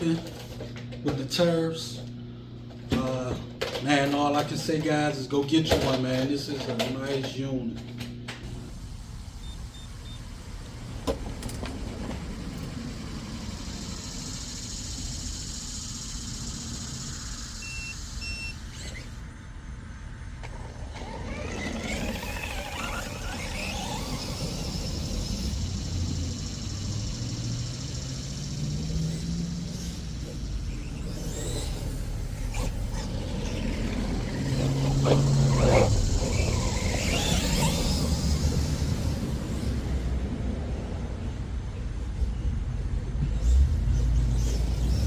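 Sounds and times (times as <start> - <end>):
outdoor noise: 0.0 - 45.0
electric motor whining: 8.0 - 19.3, 20.3 - 40.2.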